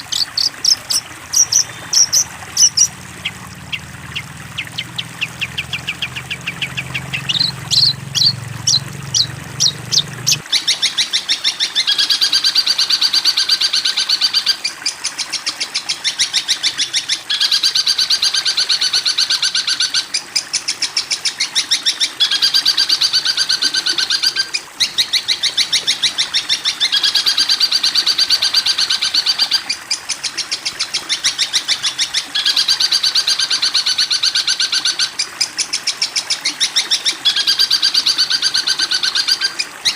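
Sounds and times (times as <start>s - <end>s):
rapid high bird trill: 0.0s - 10.8s
songbird calls: 0.0s - 39.9s.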